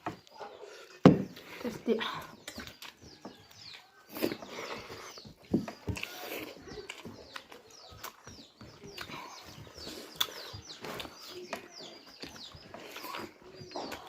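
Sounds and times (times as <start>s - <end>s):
birds chirping: 0.0s - 14.0s
chewing and mouth smacks: 2.4s - 5.0s, 5.9s - 11.3s.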